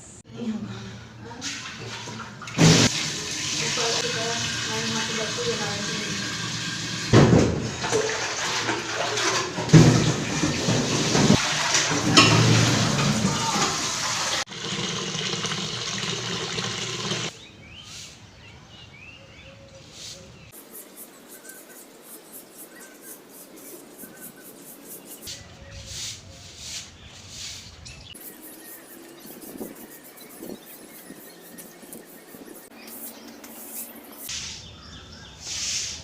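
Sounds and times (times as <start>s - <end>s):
water running and splashing: 1.4s - 17.3s.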